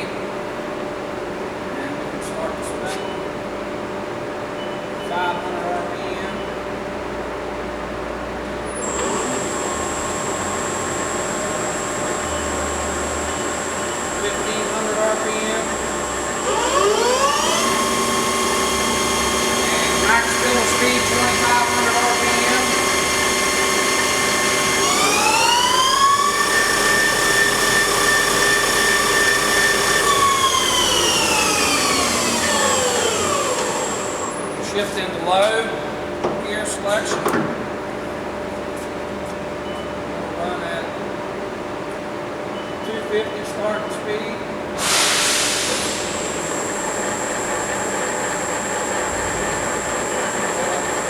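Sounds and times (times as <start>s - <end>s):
machine running noise: 8.6s - 35.2s, 44.7s - 51.0s
lathe spindle whine: 8.8s - 34.6s, 44.8s - 51.0s
hiss rush: 44.8s - 46.5s.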